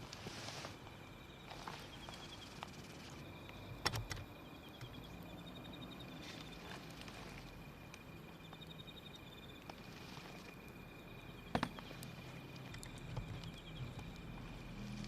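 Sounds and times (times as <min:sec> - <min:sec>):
insects chirping in trills: 0:00.0 - 0:15.0
wood fire crackling: 0:04.6 - 0:15.0
fire popping: 0:06.3 - 0:15.0.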